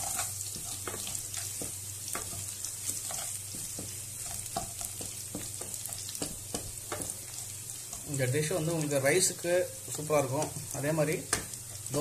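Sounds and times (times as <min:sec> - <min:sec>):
wooden spatula scraping a pan: 0:00.0 - 0:08.3
spices sizzling in oil: 0:00.0 - 0:12.0.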